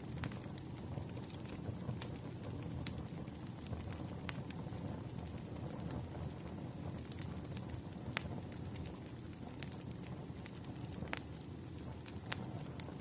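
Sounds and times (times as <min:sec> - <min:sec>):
firewood crackling and popping: 0:00.0 - 0:13.0
low rumble of flames: 0:00.0 - 0:13.0.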